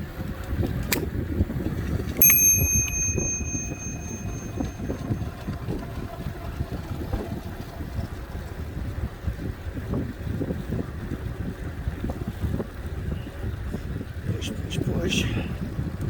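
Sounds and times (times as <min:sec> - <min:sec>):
bicycle bell ringing: 0:02.2 - 0:05.2.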